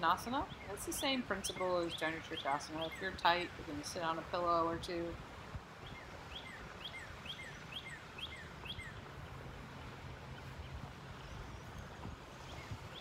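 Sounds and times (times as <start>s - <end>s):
steady outdoor hiss: 0.0s - 13.0s
bird chirping: 5.8s - 9.0s.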